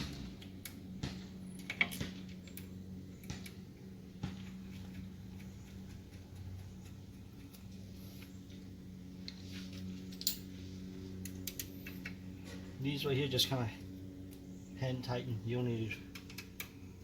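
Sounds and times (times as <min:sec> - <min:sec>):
steady low hum: 0:00.0 - 0:17.0
metal tools clicking and tapping: 0:10.1 - 0:10.5, 0:11.2 - 0:12.2, 0:16.0 - 0:16.8.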